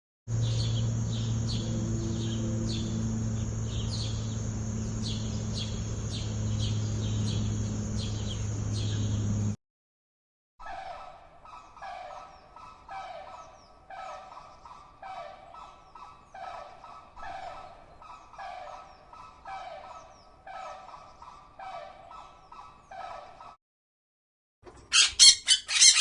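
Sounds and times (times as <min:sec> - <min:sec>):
fowl-like bird calling: 0:24.9 - 0:26.0.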